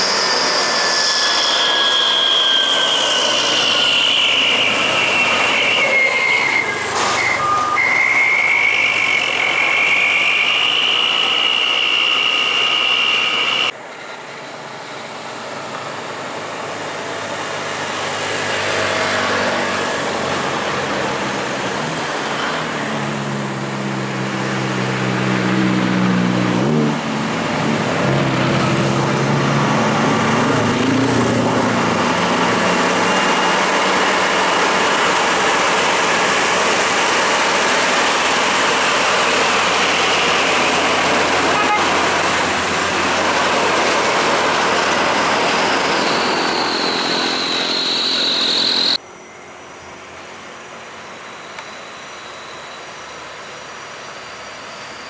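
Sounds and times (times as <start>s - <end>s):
high whine: 0.0s - 14.2s, 25.1s - 55.0s
diesel truck engine pulling: 0.0s - 55.0s.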